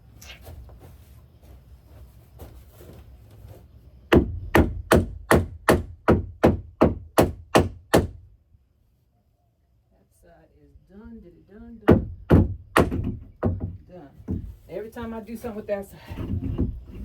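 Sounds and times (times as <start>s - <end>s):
hammer driving nail into wood: 4.1s - 8.2s, 11.9s - 13.7s.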